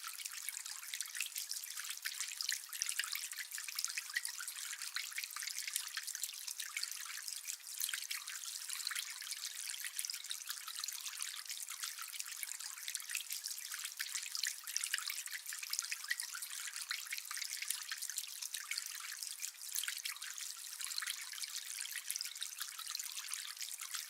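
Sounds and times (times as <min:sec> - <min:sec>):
fountain water trickling: 0:00.0 - 0:24.0.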